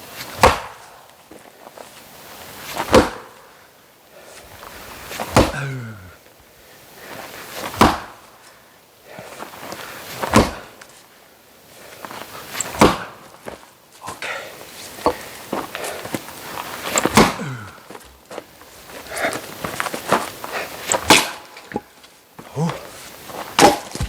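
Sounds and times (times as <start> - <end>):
firewood being chopped: 0.4 - 0.8, 2.8 - 3.3, 5.2 - 6.0, 7.7 - 8.2, 10.3 - 10.8, 12.7 - 13.4, 16.9 - 17.8, 20.9 - 21.9, 23.5 - 24.0.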